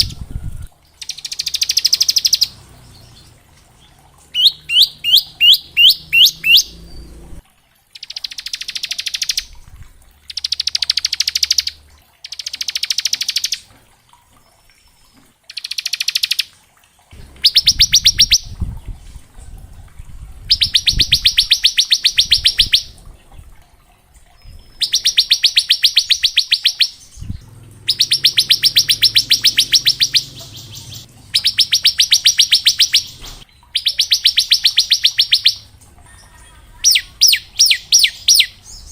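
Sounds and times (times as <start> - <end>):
bird buzzy trills: 0.0 - 7.4, 17.2 - 18.6, 20.4 - 23.0, 24.4 - 38.9.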